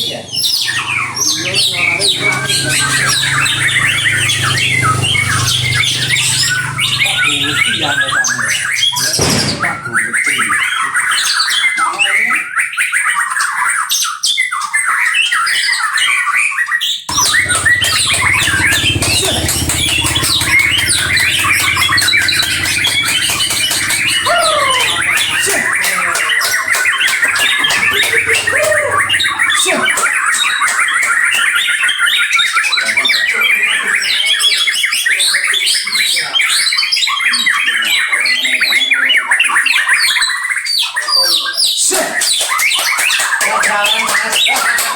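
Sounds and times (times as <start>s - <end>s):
songbirds singing and chattering: 0.0s - 44.9s
low hum: 17.1s - 25.7s, 27.7s - 29.6s.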